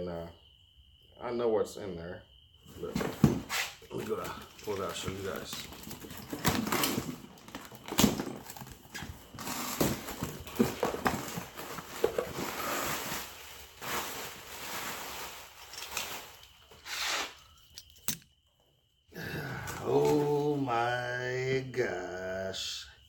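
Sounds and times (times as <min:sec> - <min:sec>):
knocks and clicks of box handling: 0:02.8 - 0:12.5
packaging rustling and crinkling: 0:02.8 - 0:16.8.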